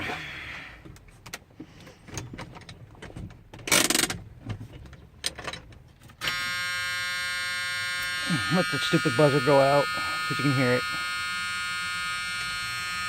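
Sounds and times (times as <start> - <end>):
handling clicks and knocks: 0.9 - 6.2
dashboard warning buzzer: 6.2 - 13.0.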